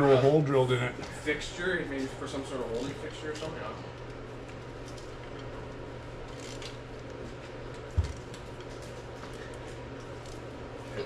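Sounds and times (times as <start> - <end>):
low workshop hum: 0.0 - 11.0.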